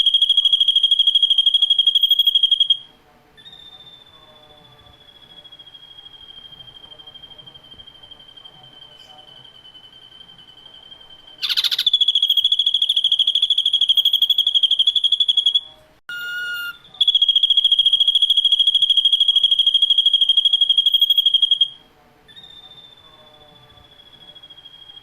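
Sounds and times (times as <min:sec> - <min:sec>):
bird singing rapid trills: 0:00.0 - 0:02.8, 0:10.8 - 0:15.7, 0:16.7 - 0:25.0
bird whistled notes: 0:00.0 - 0:25.0.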